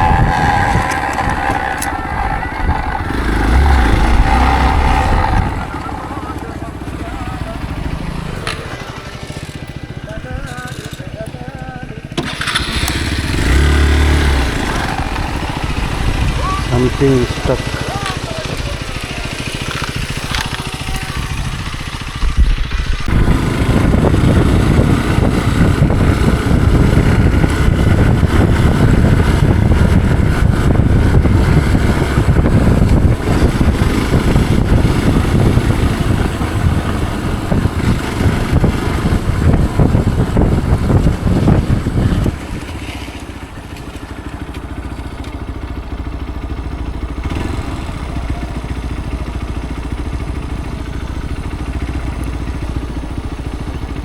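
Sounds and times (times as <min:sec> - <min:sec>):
motorcycle engine with clattering knocks: 0:03.6 - 0:13.7, 0:17.0 - 0:54.0.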